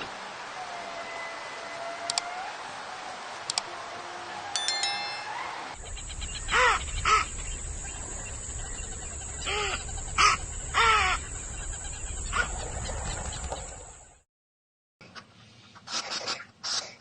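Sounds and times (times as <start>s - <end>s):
steady low rumble: 5.8s - 12.4s
bird harsh calls: 5.8s - 13.8s.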